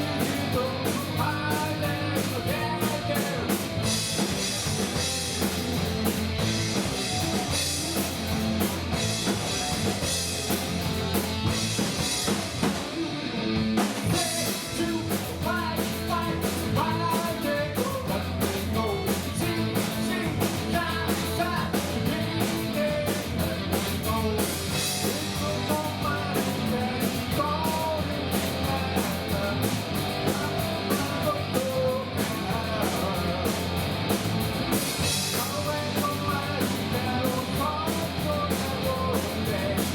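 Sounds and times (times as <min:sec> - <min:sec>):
person singing: 0:00.0 - 0:03.6, 0:14.1 - 0:33.8, 0:35.1 - 0:39.9
rock band playing live: 0:00.0 - 0:39.9.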